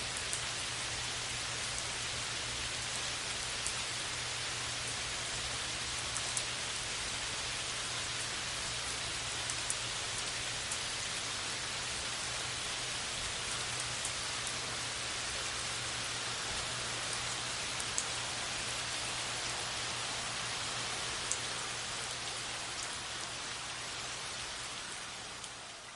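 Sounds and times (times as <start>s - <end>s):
rain hissing on a surface: 0.0s - 25.9s
single raindrop tick: 21.3s - 21.5s.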